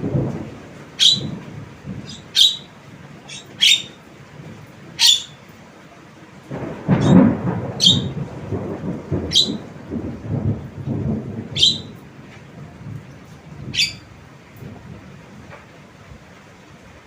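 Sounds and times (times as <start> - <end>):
low rumbling noise: 0.0 - 17.0
bird giving sharp high calls: 1.0 - 1.3, 2.0 - 4.0, 5.0 - 5.4, 7.8 - 8.2, 9.3 - 9.6, 11.6 - 11.9, 13.8 - 14.1.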